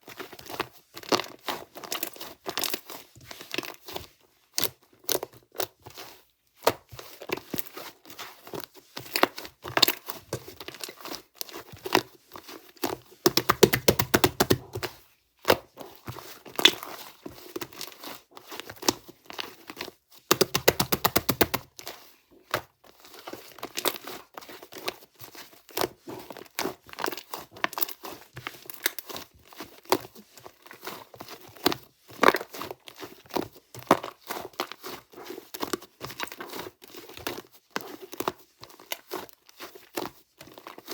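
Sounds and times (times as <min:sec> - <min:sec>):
clay slime squished by hand: 0:00.2 - 0:40.9
slime fast crackling: 0:13.3 - 0:14.8, 0:20.3 - 0:21.6.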